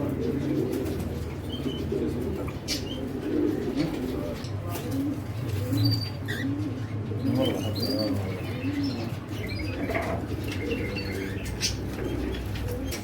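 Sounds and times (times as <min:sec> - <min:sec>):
doves cooing: 0:00.0 - 0:13.0
small birds chirping: 0:05.7 - 0:13.0.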